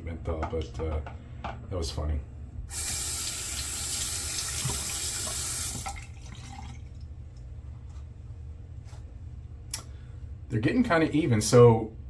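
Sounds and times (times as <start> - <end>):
sink tap running: 2.7 - 6.8.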